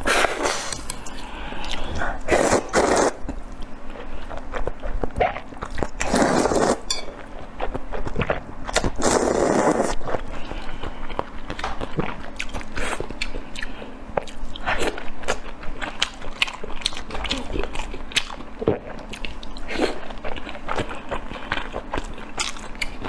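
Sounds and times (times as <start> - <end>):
chewing and biting food: 0.0 - 23.0.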